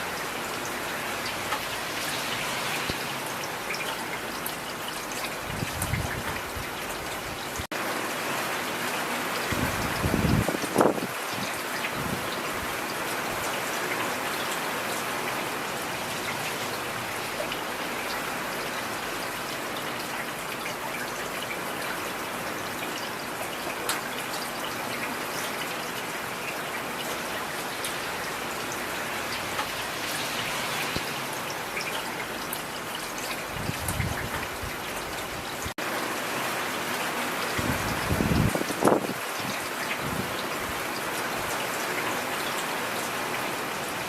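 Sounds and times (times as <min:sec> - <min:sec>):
heavy rain falling: 0:00.0 - 0:44.0.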